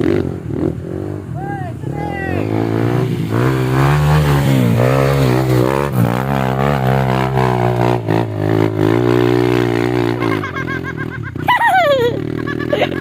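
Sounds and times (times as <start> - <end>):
motor engine droning: 2.2 - 13.0.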